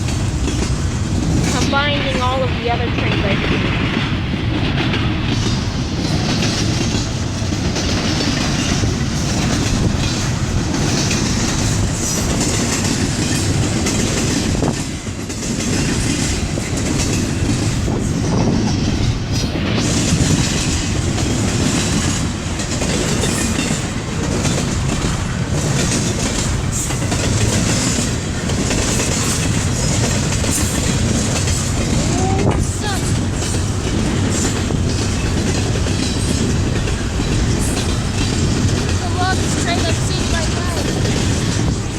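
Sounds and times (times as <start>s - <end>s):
clickety-clack over rail joints: 0.0s - 41.9s
train wheels rumbling: 0.0s - 41.9s.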